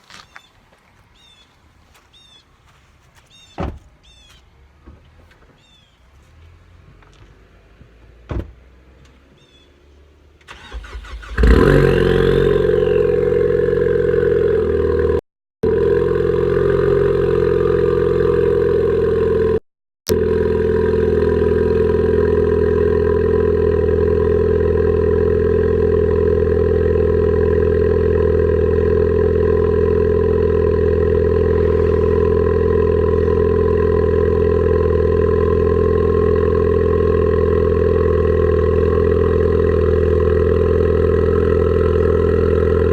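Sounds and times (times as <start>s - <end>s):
engine cranking: 10.4s - 13.9s
car engine revving and idling: 10.4s - 42.9s.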